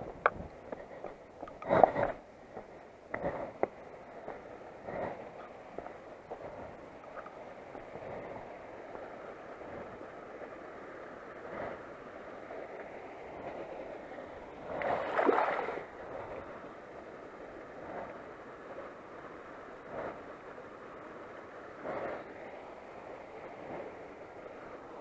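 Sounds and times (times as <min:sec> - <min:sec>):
noisy water surge: 0:01.6 - 0:25.0
running water rushing: 0:12.0 - 0:25.0.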